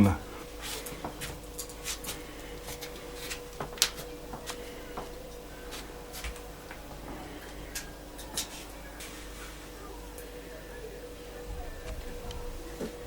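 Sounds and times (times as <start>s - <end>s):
faint steady hum: 0.0s - 13.0s
clicks and rustles of handling: 0.6s - 9.6s.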